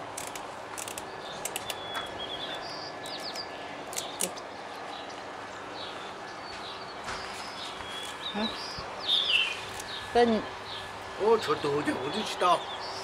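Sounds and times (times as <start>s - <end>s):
sharp clicks: 0.1s - 4.4s
birds chirping: 0.1s - 13.0s.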